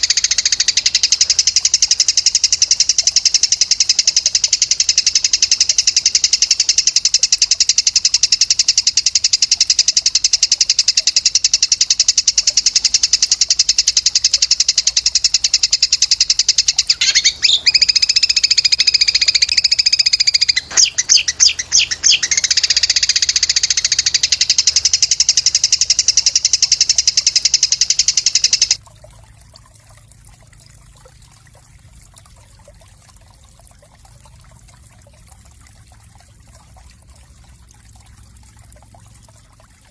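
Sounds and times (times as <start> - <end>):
songbird buzzing trill: 0.0 - 28.8.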